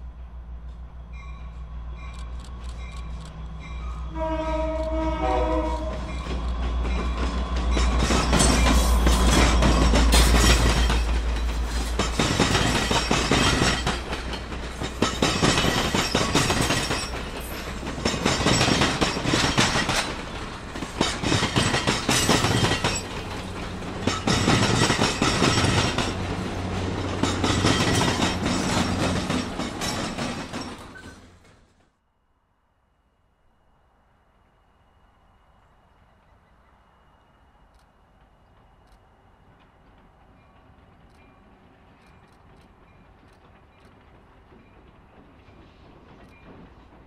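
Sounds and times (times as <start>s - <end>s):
diesel locomotive engine rumble: 0.0s - 31.8s
train wheels clicking over rail joints: 5.8s - 31.9s, 37.7s - 47.0s.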